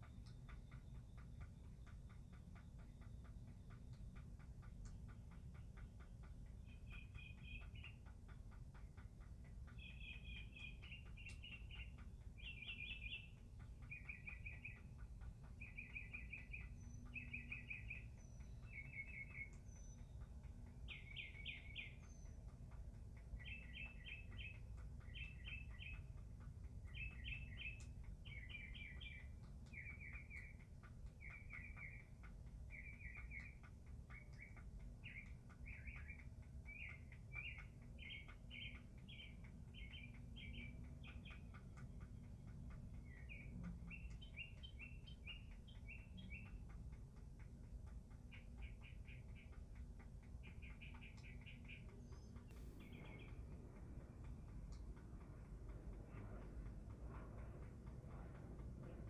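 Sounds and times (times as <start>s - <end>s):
fast faint ticking: 0.0s - 59.0s
low background rumble: 0.0s - 59.0s
songbird trilling: 6.6s - 8.1s, 9.7s - 22.5s, 23.3s - 26.2s, 26.8s - 41.5s, 43.0s - 46.7s, 48.2s - 49.7s, 50.4s - 53.5s.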